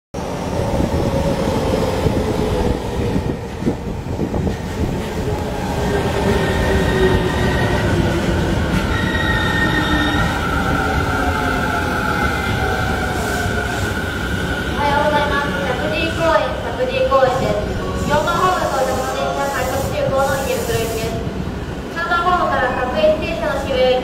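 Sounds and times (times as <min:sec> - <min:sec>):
electric train rumbling: 0:00.2 - 0:24.0
high brake squealing: 0:08.9 - 0:10.5.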